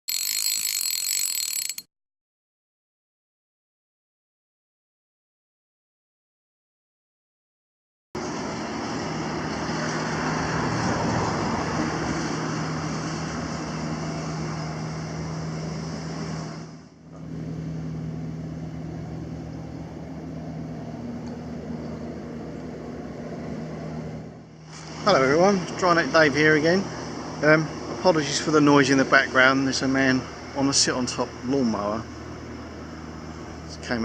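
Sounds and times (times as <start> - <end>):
ride-on lawnmower engine running: 8.2 - 34.0.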